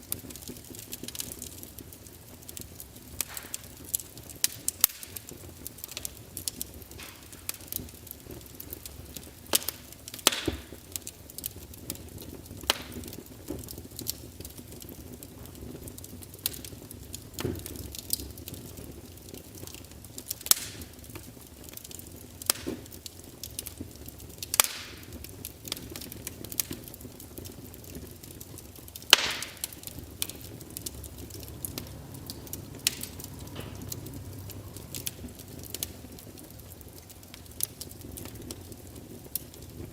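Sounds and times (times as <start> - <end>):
wood fire crackling: 0.0 - 39.9
soft low rumble: 30.1 - 36.0.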